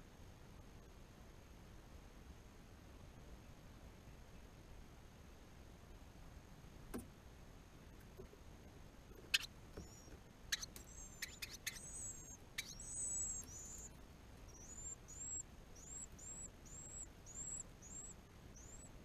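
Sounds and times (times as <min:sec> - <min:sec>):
bird chirps: 0:09.2 - 0:19.0.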